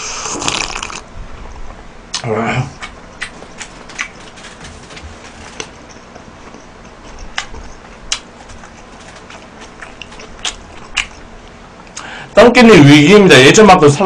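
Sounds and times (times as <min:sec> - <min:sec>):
chewing food: 0:02.1 - 0:12.0.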